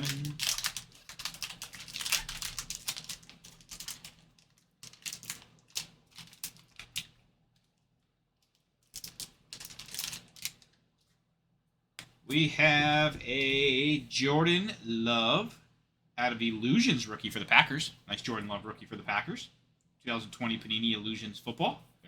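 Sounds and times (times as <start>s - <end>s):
card wrapper crackling: 0.0s - 7.2s, 8.5s - 10.8s.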